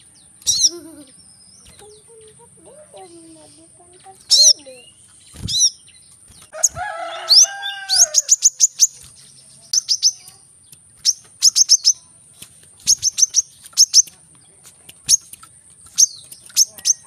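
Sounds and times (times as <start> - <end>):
sunbird high chirps: 0.0 - 17.0
lower warbling bird phrase: 0.5 - 5.0, 6.7 - 8.7.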